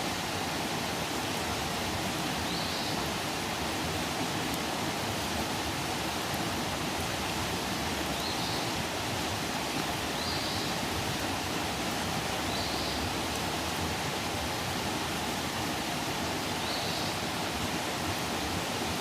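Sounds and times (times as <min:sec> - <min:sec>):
campfire burning with hiss: 0:00.0 - 0:19.0.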